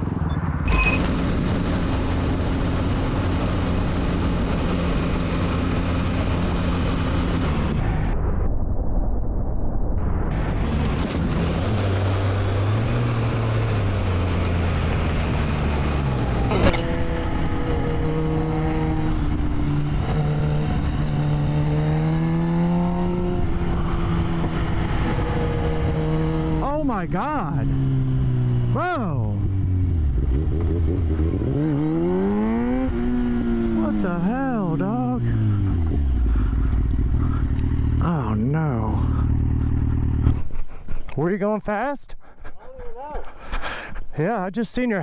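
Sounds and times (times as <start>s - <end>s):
three-wheeler engine droning: 0.7s - 8.4s, 10.4s - 28.8s, 29.4s - 41.0s
brief sharp click: 16.5s - 16.9s.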